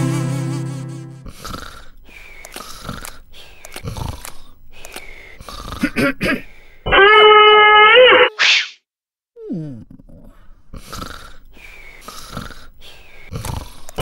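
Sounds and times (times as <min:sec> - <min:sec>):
cartoon character sniffing: 0:00.0 - 0:06.6, 0:08.2 - 0:08.8, 0:10.7 - 0:14.0.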